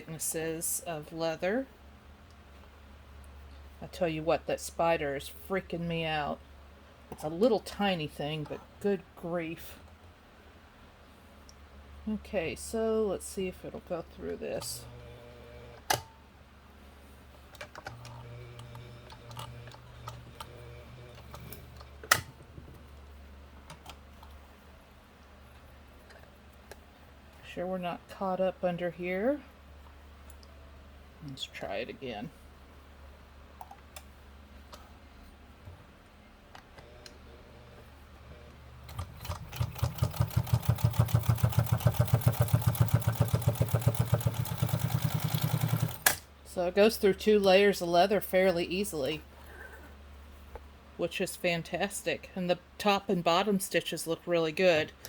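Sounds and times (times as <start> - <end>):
sewing machine stitching: 38.9 - 46.2.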